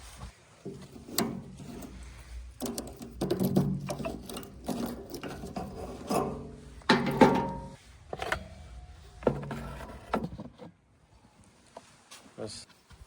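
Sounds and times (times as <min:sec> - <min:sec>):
backhoe metallic scraping and clanking: 0:00.6 - 0:10.7.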